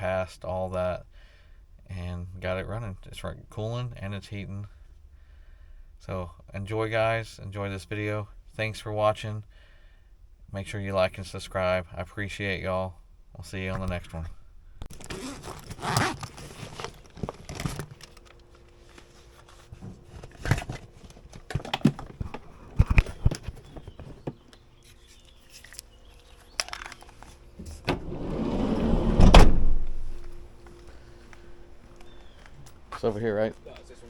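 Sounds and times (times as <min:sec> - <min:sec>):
faint steady hum: 0:00.0 - 0:34.0
rushing noise: 0:27.9 - 0:30.6.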